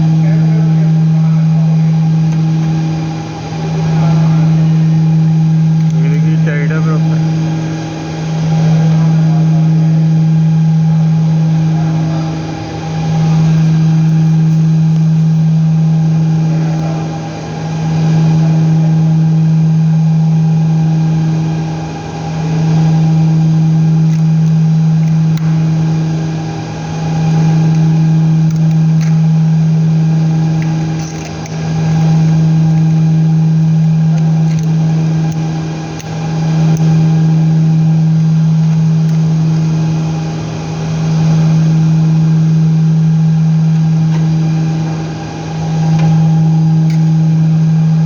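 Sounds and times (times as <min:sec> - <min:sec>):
low machine hum: 0:00.0 - 0:48.0.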